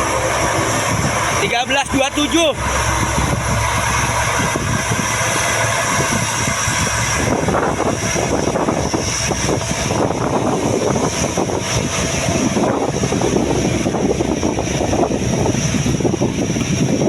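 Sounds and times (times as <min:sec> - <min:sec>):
turboprop engines running: 0:00.0 - 0:17.0.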